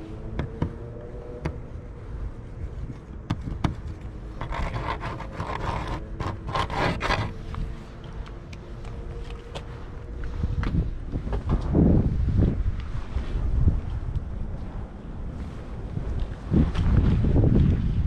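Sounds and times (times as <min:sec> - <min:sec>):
bicycle road rumble: 0:00.0 - 0:18.0
rough scraping noise: 0:04.3 - 0:08.0.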